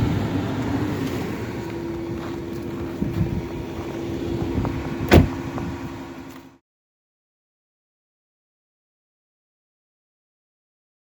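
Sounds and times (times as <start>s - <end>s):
car engine idling: 0.0s - 6.4s
heater fan running: 0.0s - 6.6s
sharp thump: 5.1s - 5.4s.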